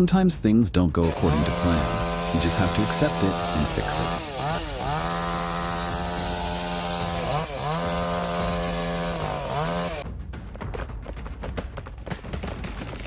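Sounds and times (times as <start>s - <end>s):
chainsaw cutting wood: 1.0s - 10.0s
wood cracking and snapping: 10.8s - 13.0s.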